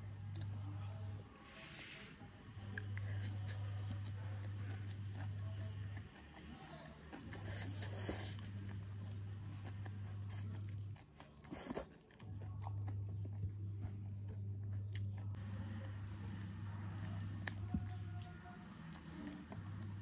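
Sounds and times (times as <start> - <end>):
steady low hum: 0.0 - 20.0
chewing food: 0.3 - 0.7, 2.6 - 20.0.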